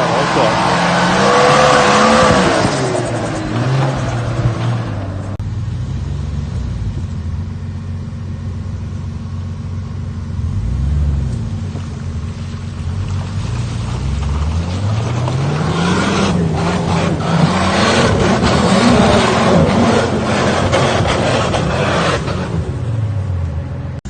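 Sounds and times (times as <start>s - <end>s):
engine revving under load: 0.0s - 7.0s, 13.0s - 23.5s.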